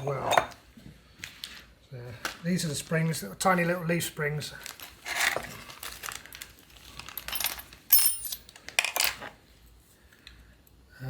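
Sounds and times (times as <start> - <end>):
small steel parts clinking: 7.0 - 9.3.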